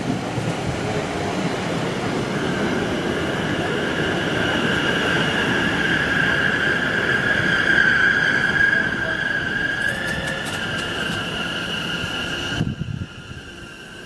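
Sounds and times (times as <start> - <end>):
train rumbling into platform: 0.0 - 14.0
high steady brake squeal: 4.0 - 14.0.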